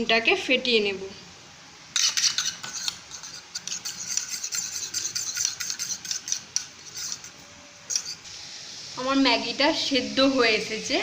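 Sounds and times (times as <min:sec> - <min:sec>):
fork beating egg in bowl: 0:01.9 - 0:08.2.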